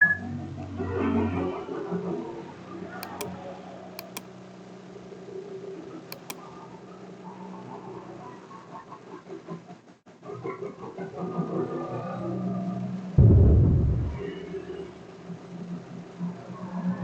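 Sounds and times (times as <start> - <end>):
short sharp clicks: 3.0 - 3.4, 4.0 - 4.2, 6.1 - 6.4.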